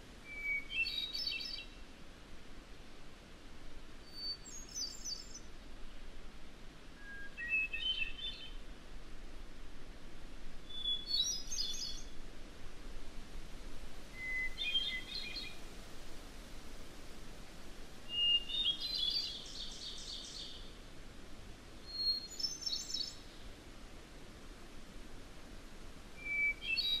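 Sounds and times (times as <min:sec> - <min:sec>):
songbird singing: 0:00.2 - 0:01.9, 0:04.0 - 0:06.1, 0:06.9 - 0:08.7, 0:10.6 - 0:12.2, 0:14.0 - 0:16.1, 0:18.1 - 0:20.8, 0:21.8 - 0:23.6, 0:26.2 - 0:27.0.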